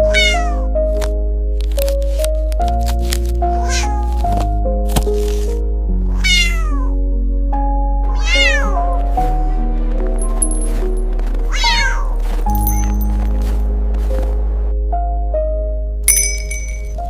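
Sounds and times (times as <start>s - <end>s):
cat meowing: 0.0s - 0.7s, 3.6s - 4.2s, 6.1s - 7.0s, 8.1s - 8.9s, 11.5s - 12.2s
background music with held notes: 0.0s - 17.0s.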